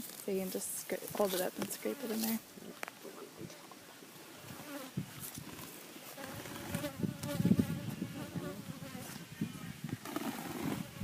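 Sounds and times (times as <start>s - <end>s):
honeybees buzzing: 6.0s - 11.0s.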